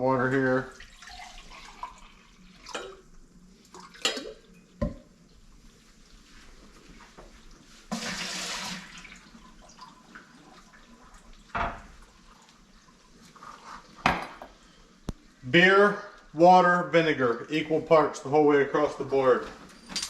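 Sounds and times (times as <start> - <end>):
water poured into a pot: 0.6 - 4.6, 7.9 - 13.8.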